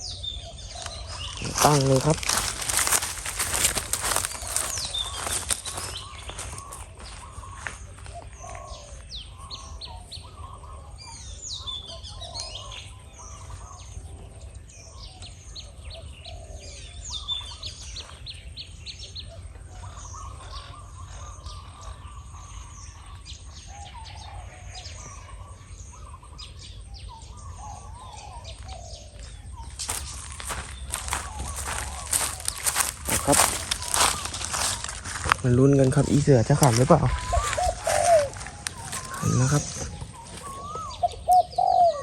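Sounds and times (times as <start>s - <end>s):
dove cooing: 0.0s - 11.2s, 19.2s - 42.0s
small birds chirping: 0.0s - 42.0s.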